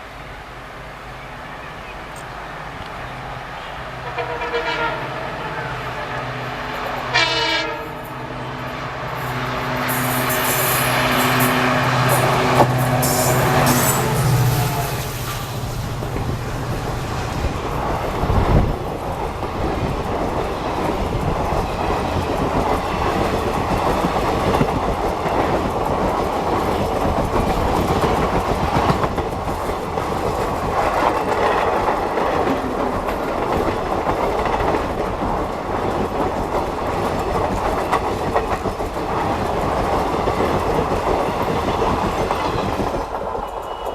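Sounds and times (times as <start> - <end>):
train wheels rumbling on rails: 0.0 - 43.9
clickety-clack over rail joints: 15.2 - 43.9.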